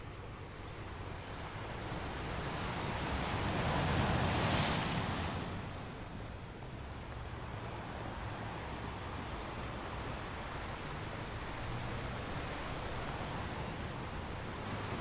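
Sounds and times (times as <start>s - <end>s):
surf washing onto beach: 2.7s - 5.8s.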